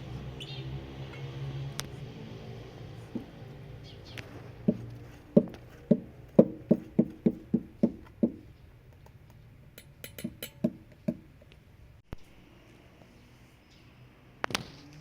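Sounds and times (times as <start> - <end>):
hollow knocks: 4.6 - 8.5, 10.0 - 11.3.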